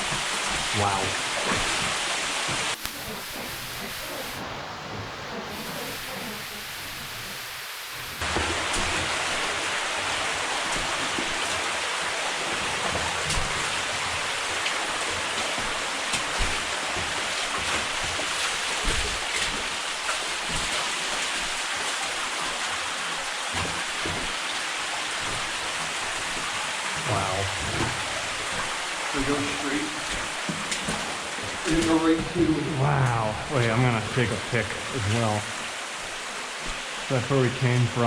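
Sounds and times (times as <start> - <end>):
water rushing and dripping: 0.0 - 38.0.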